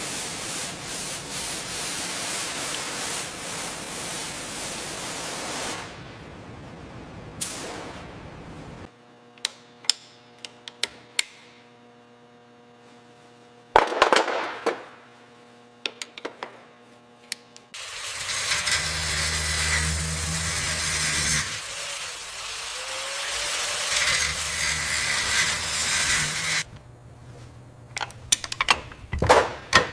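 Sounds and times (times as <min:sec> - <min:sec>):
loud steady hiss with rumble: 0:00.0 - 0:08.9
sharp clicks and knocks: 0:27.5 - 0:29.9.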